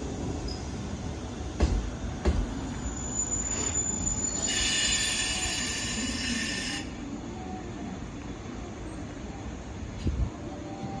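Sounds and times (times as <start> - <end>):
high squeal of train brakes: 0.4 - 0.9, 2.4 - 7.9.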